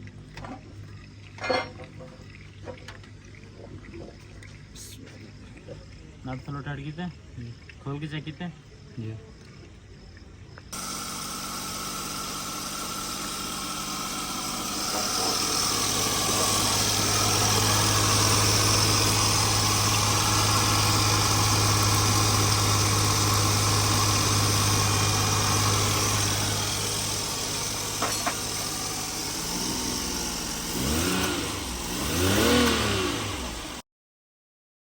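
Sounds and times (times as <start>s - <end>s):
car engine idling and revving: 10.7s - 33.8s.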